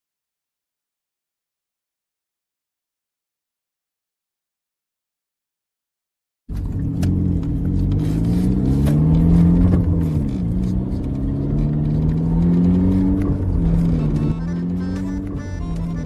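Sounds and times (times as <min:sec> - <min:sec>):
car engine revving: 0:06.5 - 0:16.0.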